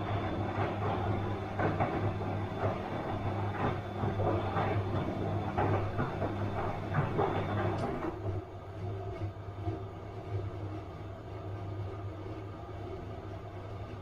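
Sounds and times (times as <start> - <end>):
water and laundry swishing: 0.0 - 8.3
washing machine motor hum: 0.0 - 14.0.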